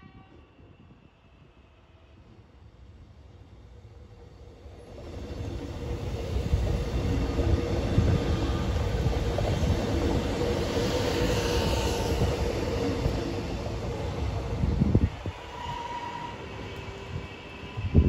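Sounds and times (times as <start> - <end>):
distant train running: 0.0 - 18.0
train wheels rumbling on rails: 3.0 - 18.0
faint wheel squeal: 15.4 - 16.6.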